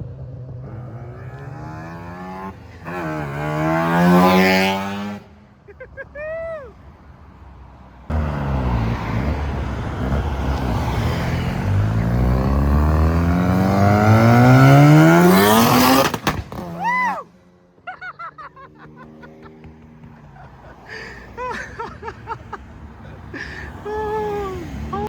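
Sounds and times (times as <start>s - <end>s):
car engine accelerating hard: 0.0s - 5.3s, 8.1s - 16.8s.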